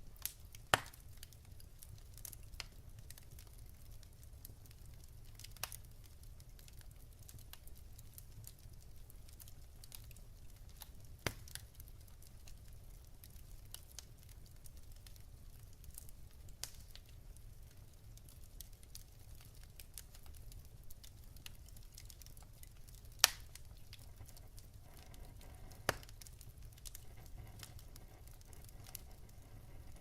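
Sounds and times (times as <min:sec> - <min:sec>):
fire popping: 0:00.0 - 0:30.0
wood fire crackling: 0:00.0 - 0:30.0
faint low rumble: 0:22.5 - 0:30.0.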